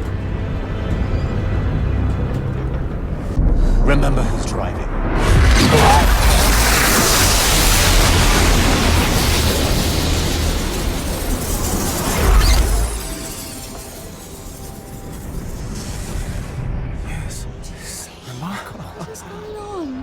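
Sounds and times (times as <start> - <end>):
magical blast roar with deep rumble: 3.0 - 17.6
quiet music: 13.9 - 20.0.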